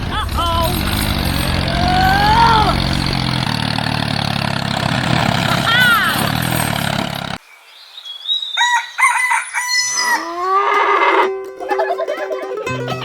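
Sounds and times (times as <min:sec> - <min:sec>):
rooster crowing: 0:08.6 - 0:11.2
music with plucked strings: 0:11.2 - 0:13.0.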